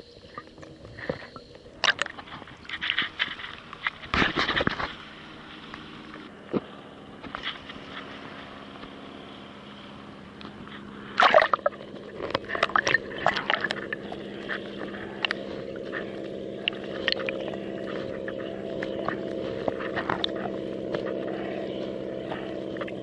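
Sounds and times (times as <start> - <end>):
low drone: 0.0 - 23.0
splashes: 10.4 - 23.0
water slapping against kayak hull: 10.4 - 23.0.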